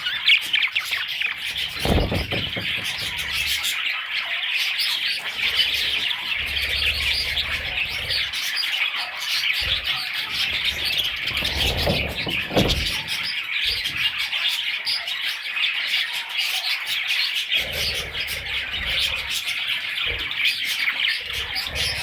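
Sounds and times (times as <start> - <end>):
budgerigars chirping and chattering: 0.0 - 22.0.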